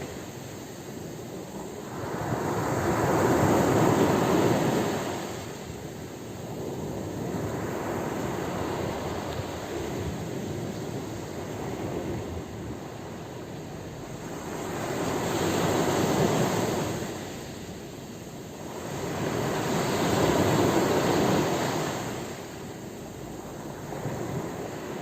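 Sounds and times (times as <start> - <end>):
sea waves breaking: 0.0 - 25.0.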